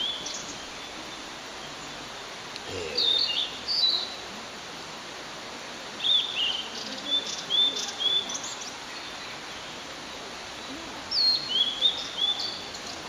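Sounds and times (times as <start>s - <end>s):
bird singing whistled notes: 3.0s - 4.2s, 6.0s - 9.8s, 11.1s - 13.0s.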